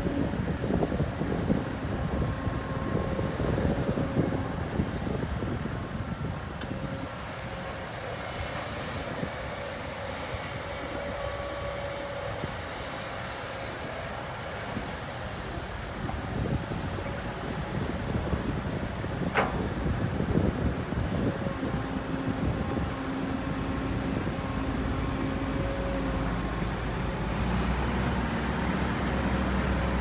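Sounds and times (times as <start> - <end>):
diesel machinery rumble: 14.6 - 30.0.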